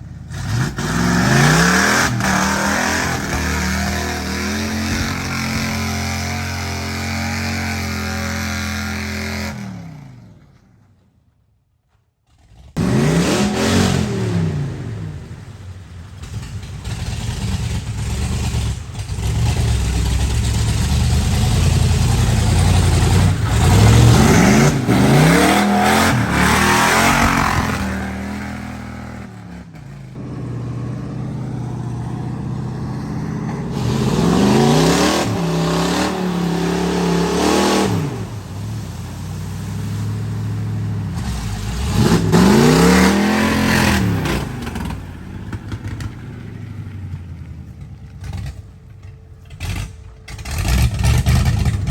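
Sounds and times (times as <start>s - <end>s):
truck engine revving: 0.0s - 10.7s, 12.4s - 51.9s.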